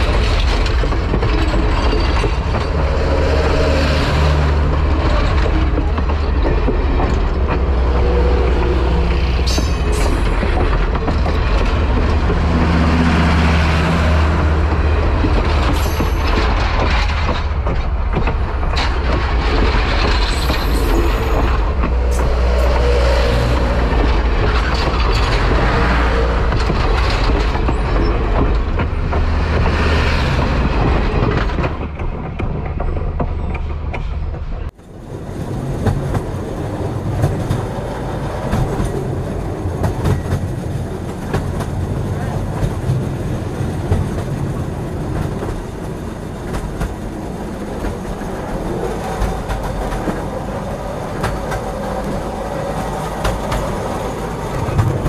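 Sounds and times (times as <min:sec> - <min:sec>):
train wheel clicks: 0:00.0 - 0:55.0
train wheels rumbling on rails: 0:00.0 - 0:55.0
high wheel squeals: 0:20.2 - 0:23.8.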